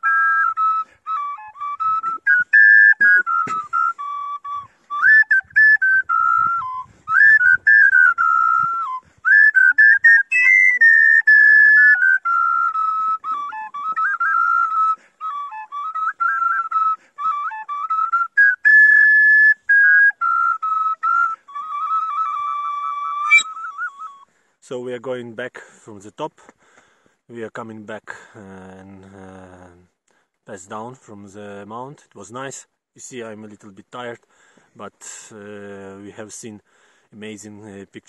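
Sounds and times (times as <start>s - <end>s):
high flute-like melody: 0.0s - 24.3s.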